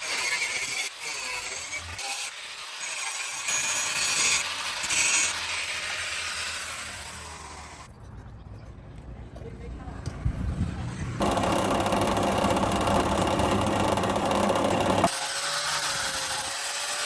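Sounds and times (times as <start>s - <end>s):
hand tool rasping: 11.2s - 17.0s.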